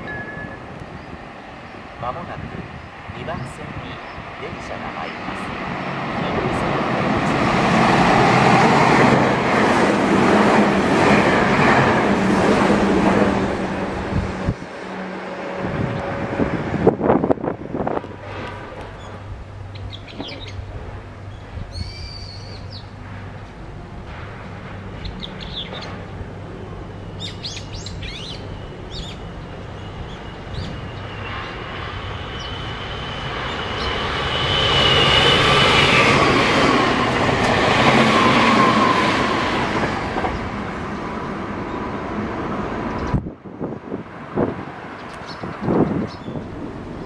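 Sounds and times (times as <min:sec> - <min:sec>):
electric train running past: 0:00.0 - 0:47.0
small birds chirping: 0:19.0 - 0:20.7, 0:21.3 - 0:22.9, 0:27.2 - 0:31.6, 0:45.0 - 0:46.5.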